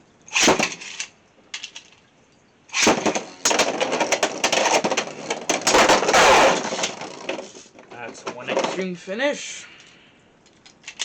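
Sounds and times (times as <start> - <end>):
spinning tops grinding: 2.7 - 7.7.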